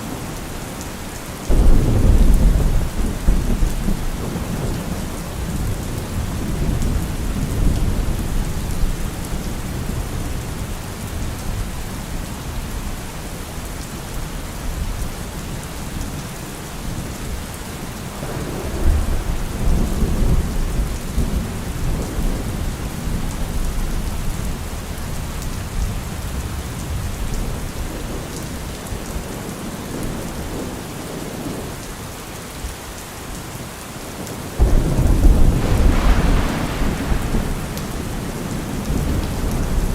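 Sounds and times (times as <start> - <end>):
steady rain: 0.0 - 39.9
rolling thunder: 1.5 - 11.3, 18.2 - 28.1, 34.6 - 39.9.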